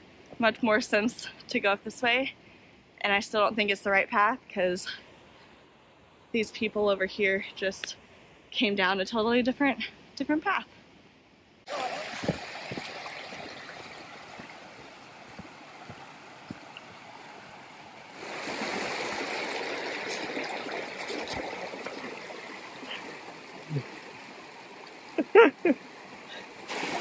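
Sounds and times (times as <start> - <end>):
rushing stream water: 11.7 - 27.0.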